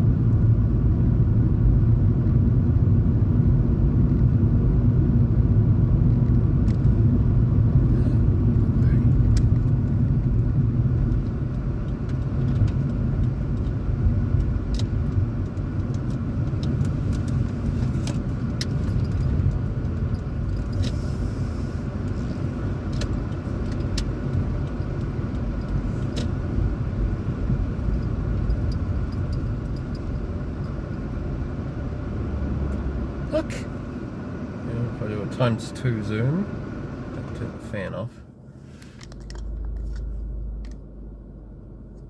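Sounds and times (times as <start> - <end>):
car engine and tyres rumbling: 0.0 - 42.0
light ticks: 11.0 - 21.0.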